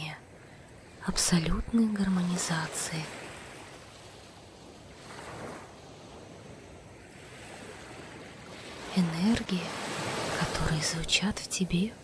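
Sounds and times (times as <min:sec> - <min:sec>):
sea waves washing ashore: 0:00.0 - 0:12.0.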